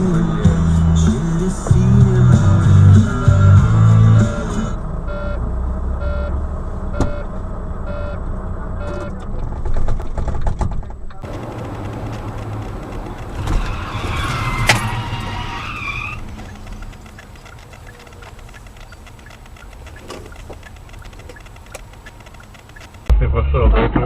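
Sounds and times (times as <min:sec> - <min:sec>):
car and road noise: 0:00.0 - 0:23.1
short electronic beeps: 0:04.2 - 0:05.4, 0:06.0 - 0:07.3, 0:07.9 - 0:08.2, 0:08.8 - 0:09.2
clicks: 0:11.1 - 0:23.1.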